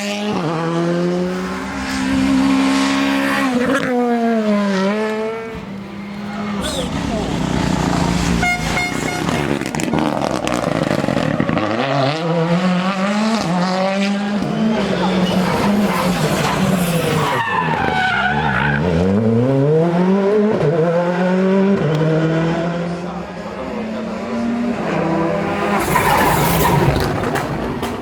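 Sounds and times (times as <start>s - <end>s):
car engine accelerating through gears: 9.4s - 27.6s.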